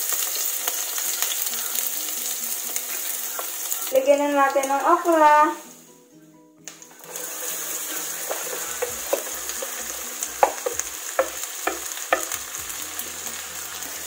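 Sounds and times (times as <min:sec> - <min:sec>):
vegetables frying in hot oil: 0:00.0 - 0:05.3, 0:07.0 - 0:14.0
oil pops and crackles: 0:08.2 - 0:12.5.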